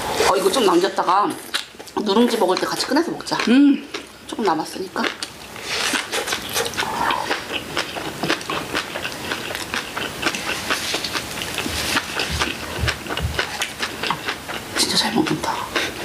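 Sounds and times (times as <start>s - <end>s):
person chewing food: 1.4s - 4.2s, 5.0s - 16.0s.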